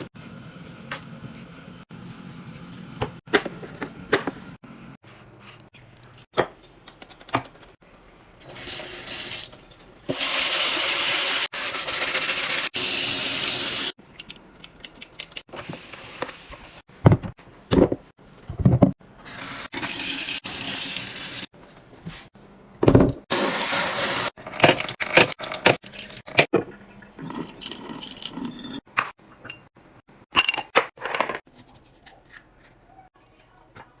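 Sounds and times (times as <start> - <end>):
water pouring: 24.9 - 28.8.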